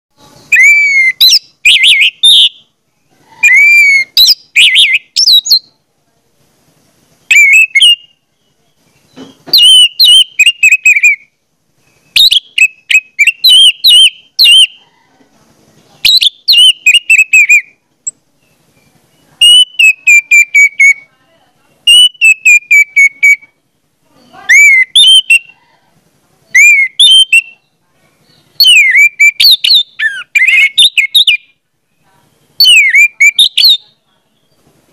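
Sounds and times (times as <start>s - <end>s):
bird chirping and whistling: 0.5s - 2.7s, 3.4s - 5.7s, 7.3s - 8.2s, 9.1s - 14.8s, 16.0s - 17.7s, 19.4s - 21.0s, 21.9s - 23.5s, 24.5s - 25.6s, 26.6s - 27.6s, 28.5s - 31.5s, 32.6s - 34.6s.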